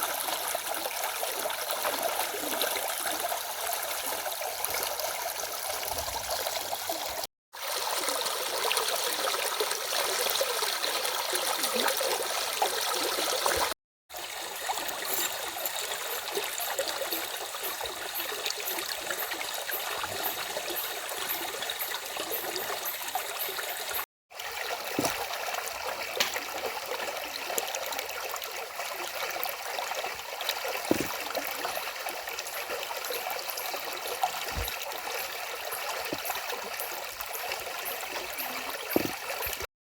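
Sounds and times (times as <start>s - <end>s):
stream running: 0.0s - 39.7s.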